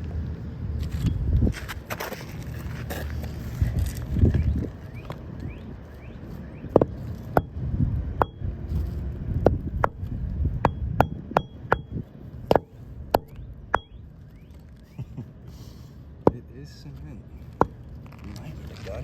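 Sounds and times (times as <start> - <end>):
hammer striking nails: 10.6 - 14.0.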